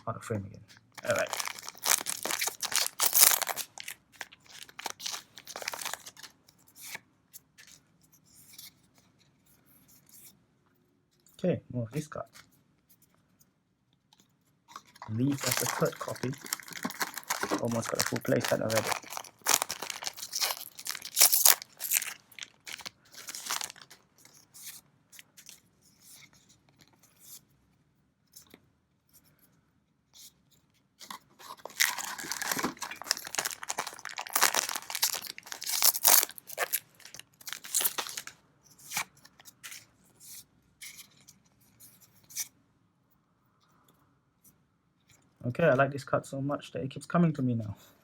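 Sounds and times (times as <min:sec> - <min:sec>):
wrappers tearing and crinkling: 0:01.0 - 0:06.3, 0:14.8 - 0:24.4, 0:31.1 - 0:39.1
cards being shuffled: 0:01.0 - 0:07.0, 0:14.7 - 0:24.8, 0:31.0 - 0:39.8.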